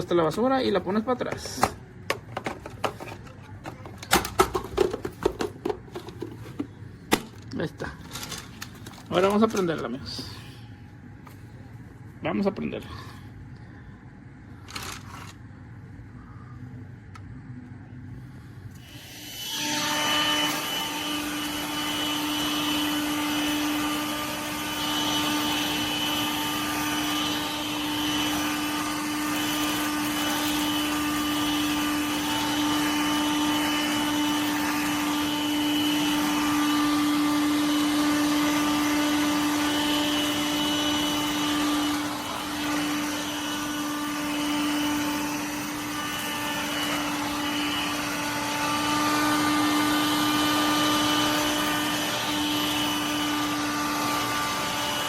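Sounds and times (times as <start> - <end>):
vacuum cleaner motor humming: 18.7 - 55.0.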